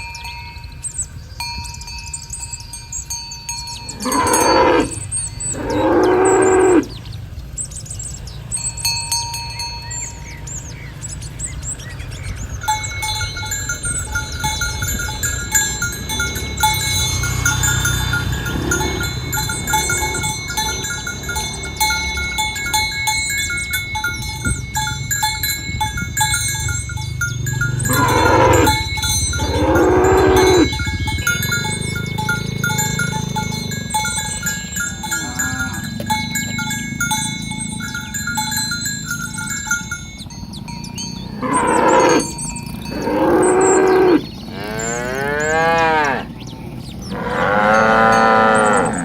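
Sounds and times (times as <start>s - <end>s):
cowbells clinking: 0.0s - 49.0s
cow mooing: 3.8s - 7.0s, 15.2s - 22.8s, 27.3s - 38.3s, 41.2s - 49.0s.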